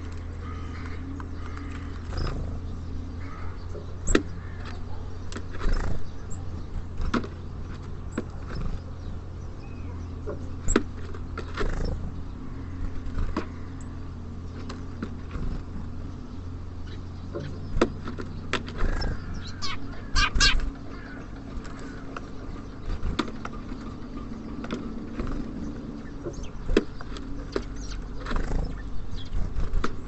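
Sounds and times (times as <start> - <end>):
low rumble of city traffic: 0.0 - 30.0
beaks tapping on a feeder: 3.7 - 9.1, 17.3 - 30.0.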